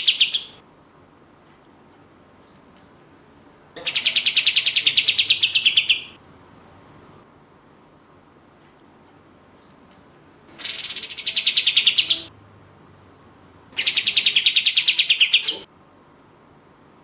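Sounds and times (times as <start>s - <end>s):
bird song rattling trills: 0.0s - 0.6s, 3.8s - 6.2s, 10.6s - 12.3s, 13.8s - 15.6s.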